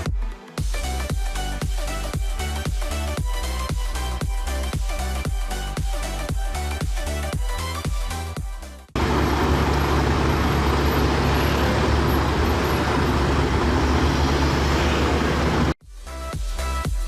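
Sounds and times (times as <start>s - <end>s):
music: 0.0s - 9.0s, 15.8s - 17.0s
vehicle engine running: 8.9s - 15.8s
traffic noise: 9.0s - 15.8s.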